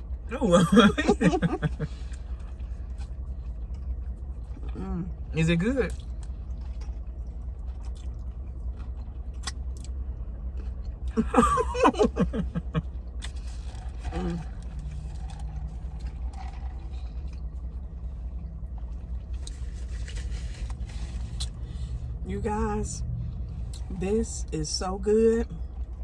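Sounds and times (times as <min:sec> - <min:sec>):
steady low hum: 0:00.0 - 0:26.0
person chewing: 0:05.9 - 0:11.4.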